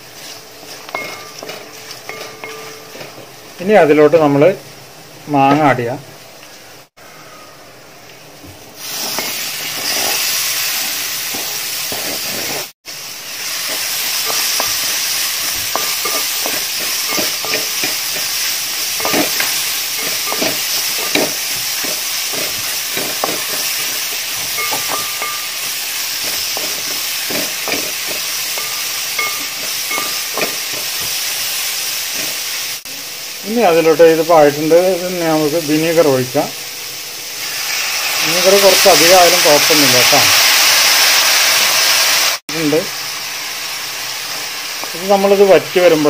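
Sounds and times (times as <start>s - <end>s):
food sizzling in hot oil: 0.0s - 6.9s, 8.3s - 46.0s
spoon scraping and knocking pan: 0.2s - 3.4s, 9.0s - 12.7s, 13.6s - 32.5s.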